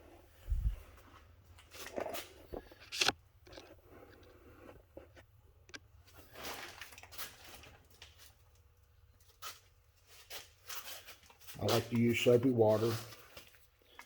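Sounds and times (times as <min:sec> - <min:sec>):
rustling: 0:06.0 - 0:08.6, 0:09.2 - 0:14.0.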